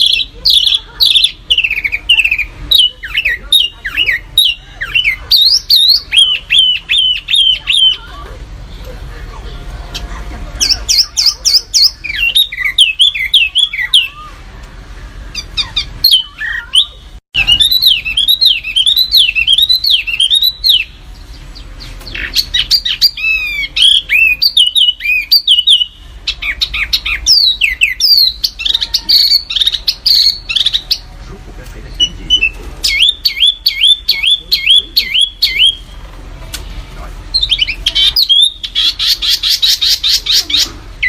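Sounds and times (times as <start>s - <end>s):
songbird chirping: 9.9s - 31.2s, 31.9s - 36.2s.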